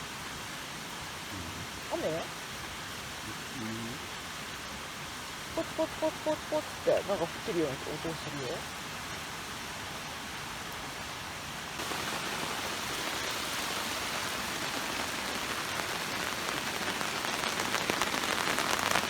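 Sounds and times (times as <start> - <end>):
rain hissing: 0.0 - 19.0
raindrops pattering: 11.7 - 19.0.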